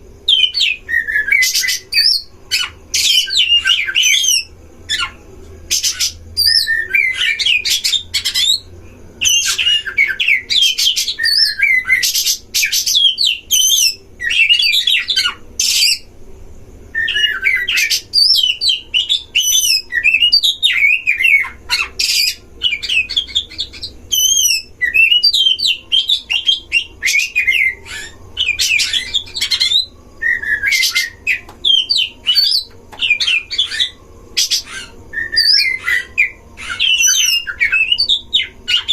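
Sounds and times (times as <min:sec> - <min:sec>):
birds singing whistles and rasps: 0:00.0 - 0:16.1, 0:16.9 - 0:38.9.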